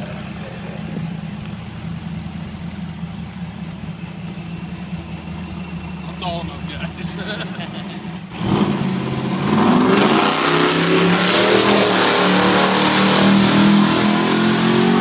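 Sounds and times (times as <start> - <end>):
drag racing car engine revving: 3.3 - 15.0.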